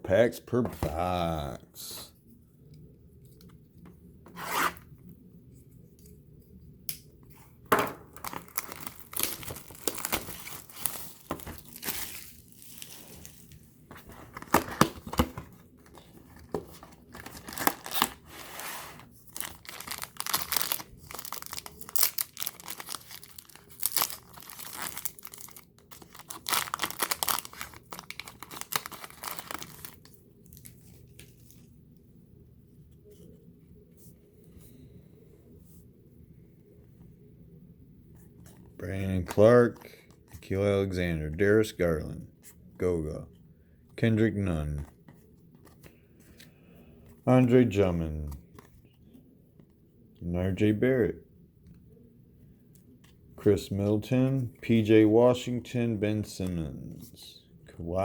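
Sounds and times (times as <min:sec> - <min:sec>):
wrapper tearing and crinkling: 0:08.2 - 0:13.3, 0:17.1 - 0:18.4, 0:19.3 - 0:30.0.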